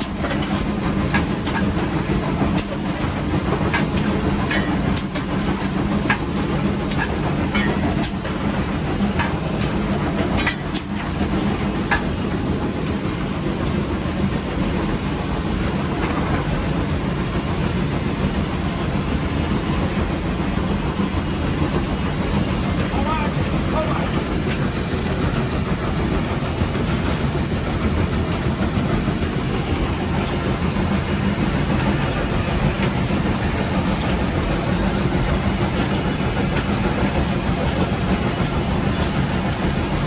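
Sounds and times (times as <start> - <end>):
sharp clanks and clicks: 0.0 - 12.2
steam locomotive rumble and rattle: 0.0 - 40.0.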